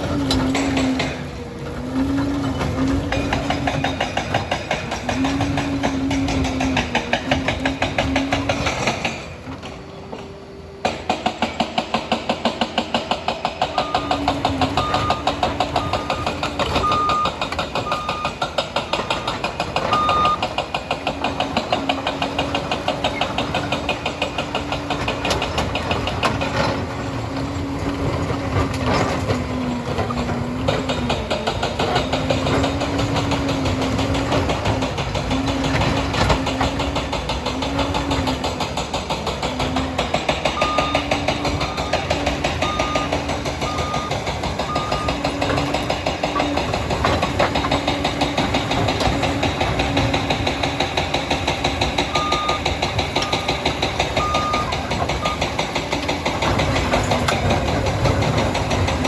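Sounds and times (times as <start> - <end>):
dozer diesel engine running hard: 0.0 - 59.0
reversing alarm beeping: 13.7 - 20.6, 40.4 - 45.7, 52.1 - 55.6.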